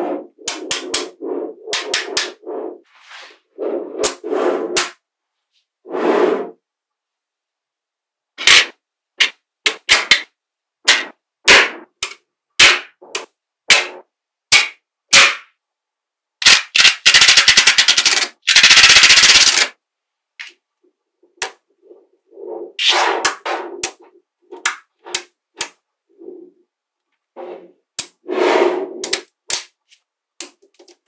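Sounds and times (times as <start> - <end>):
magnetic balls clicking together: 16.4 - 19.8.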